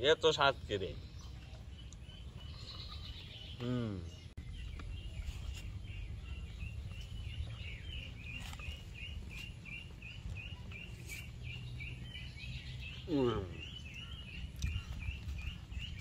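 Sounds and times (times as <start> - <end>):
bird chirping: 0.0 - 16.0
low outdoor rumble: 0.6 - 16.0.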